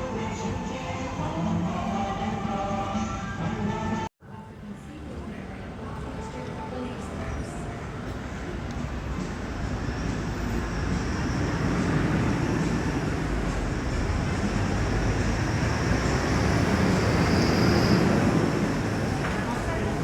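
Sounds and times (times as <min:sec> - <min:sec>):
vehicle rumble: 0:08.2 - 0:20.0.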